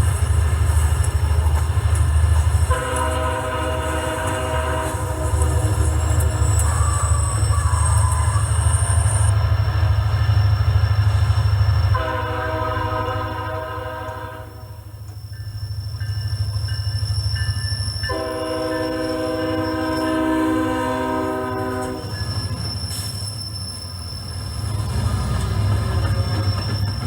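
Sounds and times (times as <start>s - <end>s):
diesel locomotive engine rumble: 0.0s - 27.0s
locomotive horn blasts: 2.5s - 9.4s, 11.9s - 14.9s, 18.1s - 22.2s.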